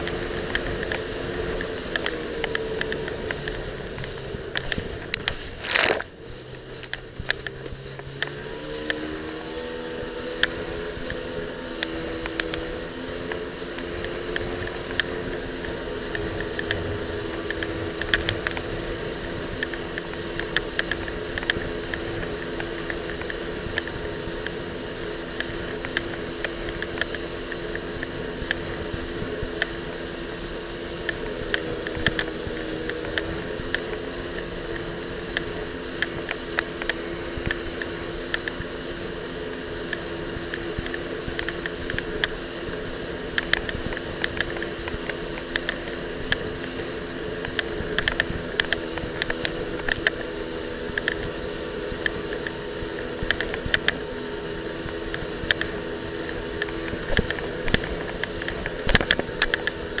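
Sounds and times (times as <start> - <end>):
jet ski engine running: 0.0 - 60.0
sharp clicks and knocks: 47.4 - 52.6, 53.2 - 54.1, 54.8 - 60.0.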